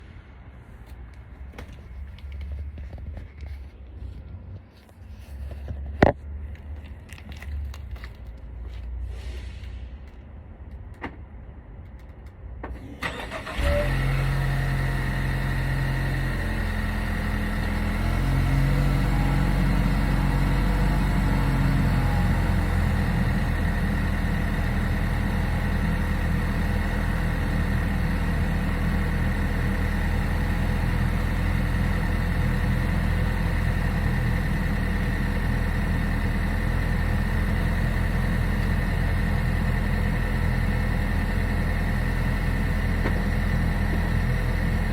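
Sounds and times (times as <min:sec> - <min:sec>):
car engine idling: 0:12.7 - 0:44.9
engine cranking and starting: 0:12.7 - 0:44.9.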